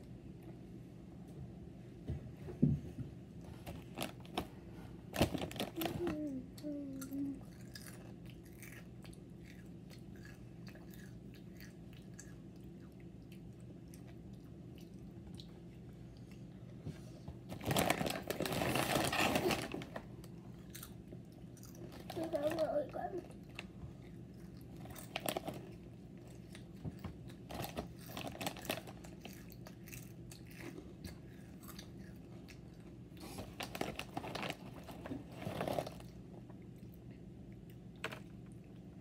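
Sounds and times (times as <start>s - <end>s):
plastic wrapper crinkling: 5.1s - 6.2s, 17.5s - 20.0s, 24.9s - 25.7s, 27.5s - 29.1s, 33.4s - 36.1s
crunchy food chewed: 7.0s - 16.7s, 20.2s - 22.2s, 23.3s - 39.0s.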